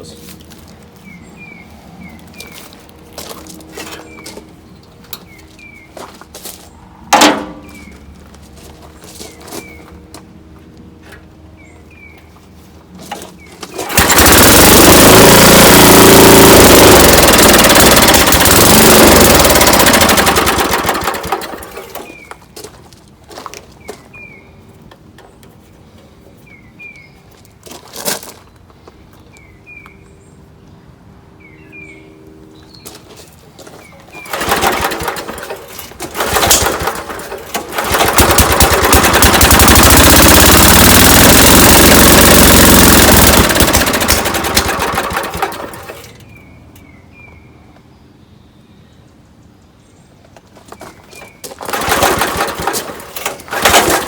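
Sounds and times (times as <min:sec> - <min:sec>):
birds chirping: 0:00.0 - 0:07.0, 0:07.6 - 0:08.3, 0:20.0 - 0:22.6, 0:23.6 - 0:27.7, 0:28.4 - 0:35.6
small gas engine starting and running: 0:13.0 - 0:22.3, 0:34.0 - 0:46.5, 0:51.2 - 0:54.0.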